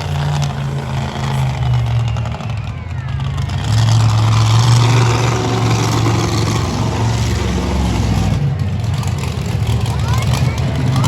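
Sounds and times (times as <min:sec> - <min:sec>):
monster truck engine running: 0:00.0 - 0:11.0.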